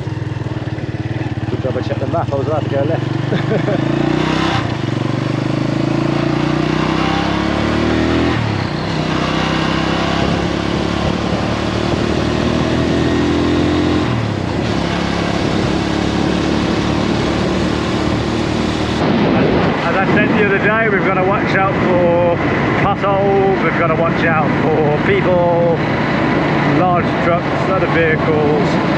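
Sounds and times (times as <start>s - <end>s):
motorbike engine accelerating: 0.0s - 28.9s
wind on microphone: 8.1s - 28.9s.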